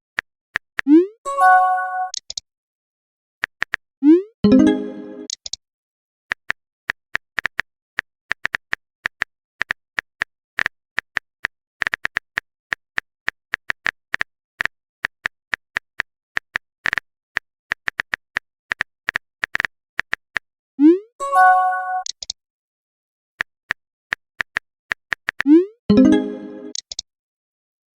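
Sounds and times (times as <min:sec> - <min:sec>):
keyboard typing clicks: 0:02.0 - 0:02.4, 0:04.4 - 0:05.6, 0:21.9 - 0:22.4, 0:24.4 - 0:27.0.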